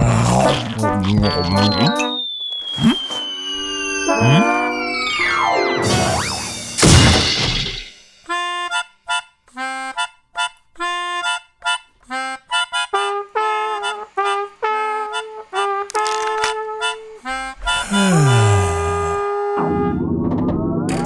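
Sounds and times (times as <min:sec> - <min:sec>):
bouncy harmonica-like tune: 0:00.0 - 0:06.3, 0:08.2 - 0:19.3
falling pitch glides: 0:01.2 - 0:06.8.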